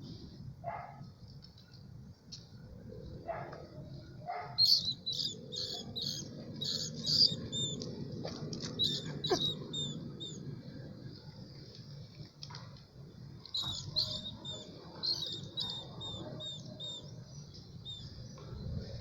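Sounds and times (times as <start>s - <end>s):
small animal squeaking shrilly: 4.6s - 7.8s, 8.8s - 10.4s, 13.6s - 16.6s.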